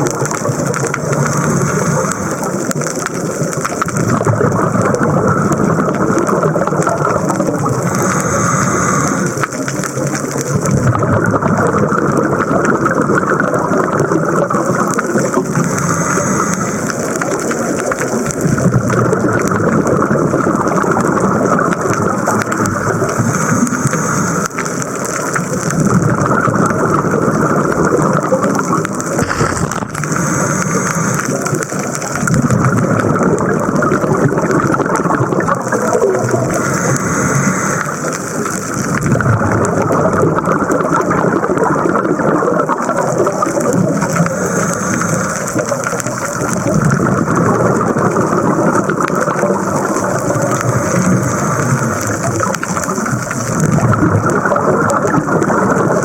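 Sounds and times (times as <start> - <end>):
regulator inhale hiss: 1.1 - 2.7, 7.8 - 9.8, 15.6 - 17.3, 29.2 - 31.6, 36.5 - 38.2, 44.1 - 45.7
exhaled bubbles rushing: 26.1 - 36.6, 39.0 - 56.0.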